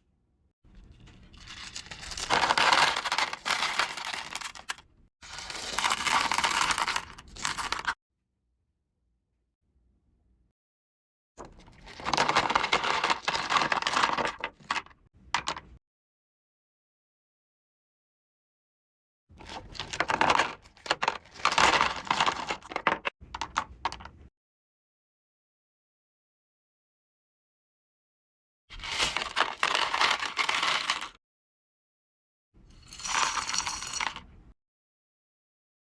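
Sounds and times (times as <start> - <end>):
packaging clicks: 1.5 - 4.8, 5.4 - 8.0
crystals rattling and clinking: 32.8 - 34.2.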